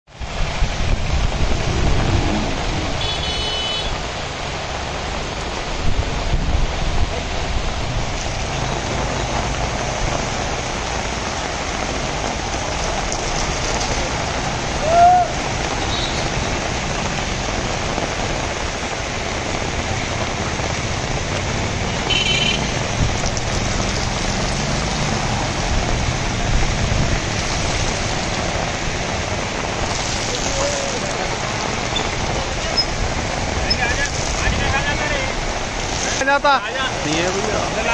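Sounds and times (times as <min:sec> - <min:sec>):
heavy rain on a street: 0:00.0 - 0:37.9
rising and falling tone: 0:01.1 - 0:03.0.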